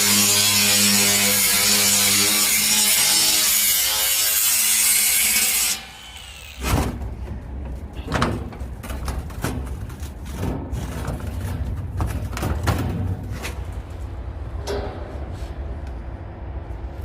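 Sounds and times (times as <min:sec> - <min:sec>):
power tool cutting: 0:00.0 - 0:06.8.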